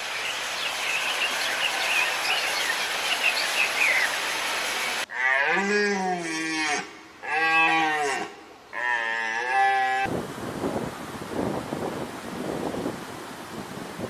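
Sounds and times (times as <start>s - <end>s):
outdoor ambience hiss: 0.0s - 14.0s
cow mooing: 5.1s - 10.1s.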